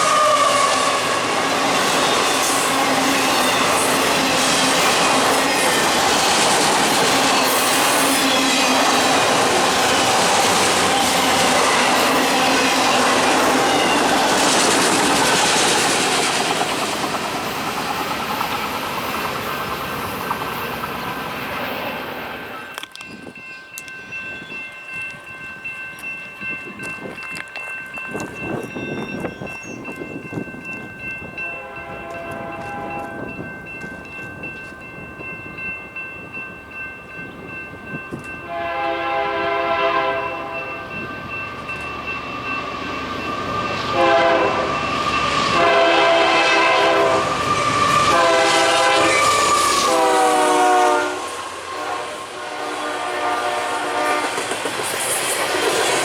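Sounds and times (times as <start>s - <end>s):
locomotive horn blasts: 0.0s - 1.7s, 31.4s - 33.3s, 38.5s - 40.9s, 43.8s - 44.8s, 45.4s - 54.4s
freight train rumbling past: 0.0s - 56.0s.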